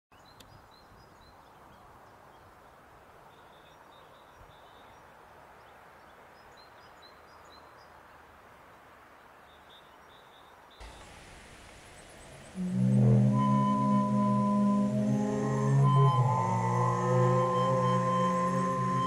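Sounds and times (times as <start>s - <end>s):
low background hiss: 0.2s - 19.0s
small birds chirping: 9.2s - 16.5s.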